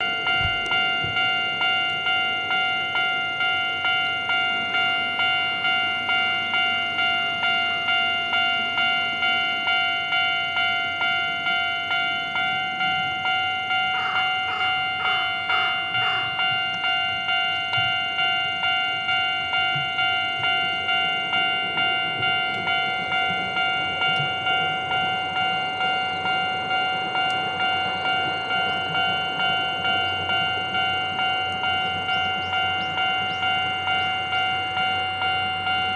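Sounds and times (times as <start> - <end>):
approaching steam train: 0.0 - 35.9
level crossing bell ringing: 0.0 - 35.9.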